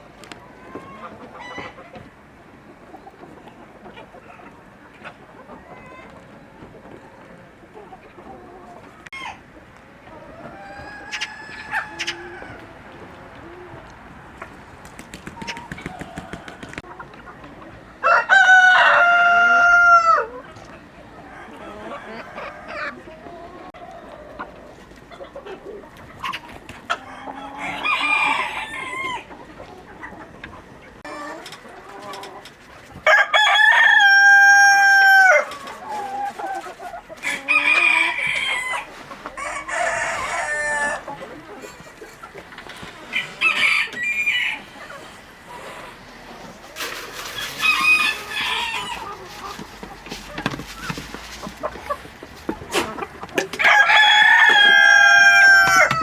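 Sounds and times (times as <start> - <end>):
chickens clucking: 0.0 - 56.0
rooster crowing: 18.0 - 20.3, 27.0 - 29.3, 33.0 - 35.5, 43.1 - 44.8, 47.4 - 49.2, 51.7 - 56.0.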